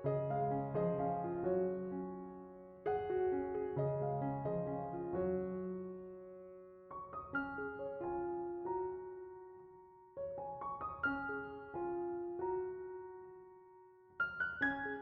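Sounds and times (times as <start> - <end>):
soft piano chords: 0.0 - 15.0.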